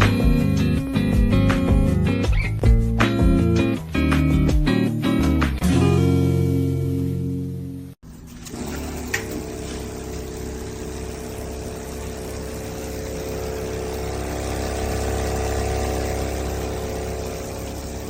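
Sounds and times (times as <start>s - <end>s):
small motor humming: 8.1s - 18.0s.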